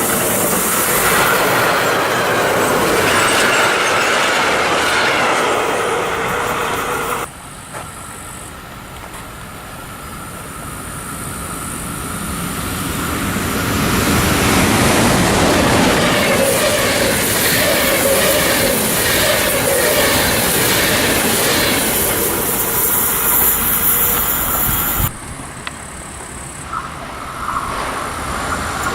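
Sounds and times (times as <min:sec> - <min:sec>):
wheels clattering over rail joints: 0:00.0 - 0:07.3, 0:13.4 - 0:28.9
train passing: 0:00.0 - 0:28.9.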